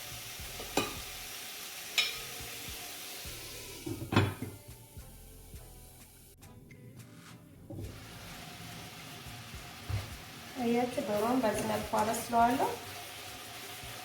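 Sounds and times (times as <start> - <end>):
chicken sizzling in a metal pot: 0.0 - 6.4, 7.8 - 14.0.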